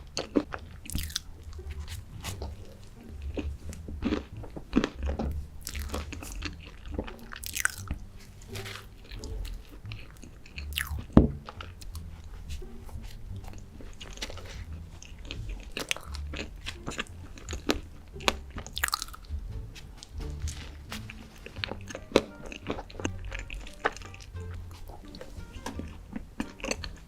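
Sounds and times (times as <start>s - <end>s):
chewing and crunching chocolate: 0.0s - 27.0s
wet mouth clicks: 0.2s - 1.6s, 17.5s - 19.3s.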